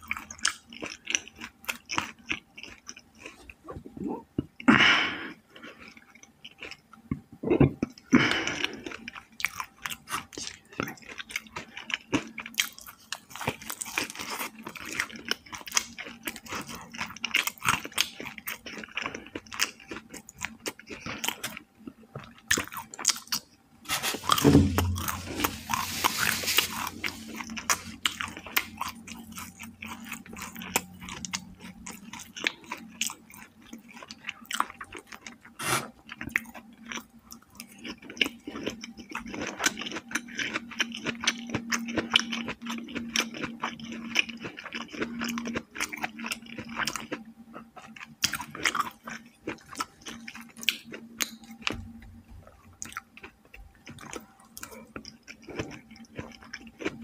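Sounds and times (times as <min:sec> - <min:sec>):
chewing and crunching fried chicken: 0:00.0 - 0:57.0
rustling noise: 0:23.8 - 0:28.0
thump: 0:24.4 - 0:25.1.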